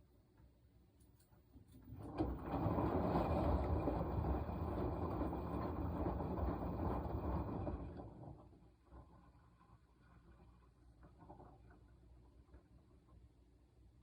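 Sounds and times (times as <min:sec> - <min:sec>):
washing machine drum churning: 0:01.8 - 0:09.2.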